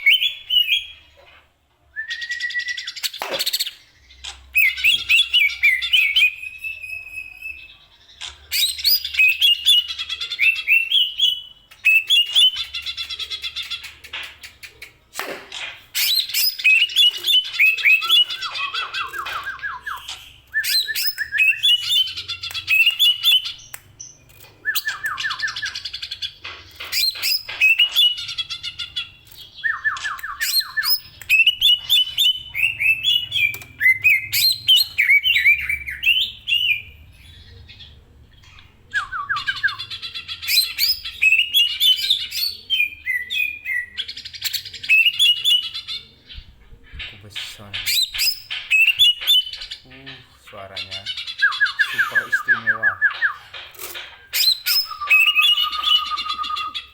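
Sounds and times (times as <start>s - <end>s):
bird singing whistled notes: 2.0s - 3.1s, 4.6s - 7.7s, 51.4s - 53.4s, 54.2s - 56.9s.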